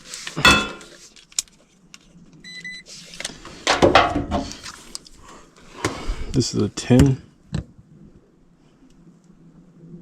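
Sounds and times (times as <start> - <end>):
tools and meter leads clattering: 0.0 - 1.5
multimeter beep: 2.4 - 2.9.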